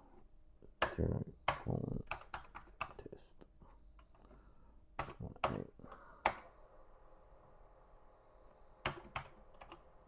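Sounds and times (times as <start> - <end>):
computer keyboard keystrokes: 1.5 - 3.0, 8.8 - 9.8.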